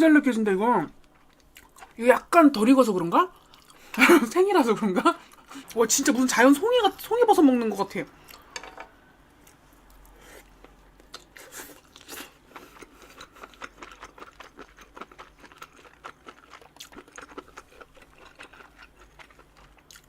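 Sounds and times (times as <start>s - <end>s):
person chewing crunchy food: 1.0s - 2.0s, 3.3s - 3.9s, 9.4s - 20.0s.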